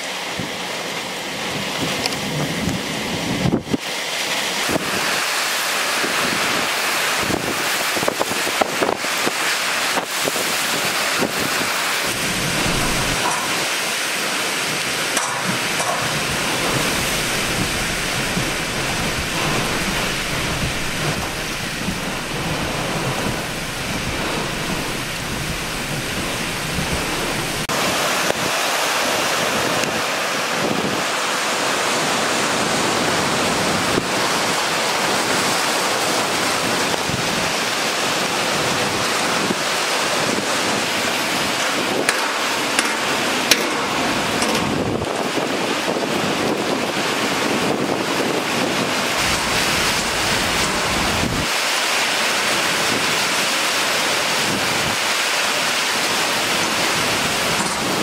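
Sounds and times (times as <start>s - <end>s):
car wading through floodwater: 0.0s - 58.0s
heavy rain downpour: 0.0s - 58.0s
wind buffeting microphone: 6.0s - 31.2s, 43.0s - 51.6s.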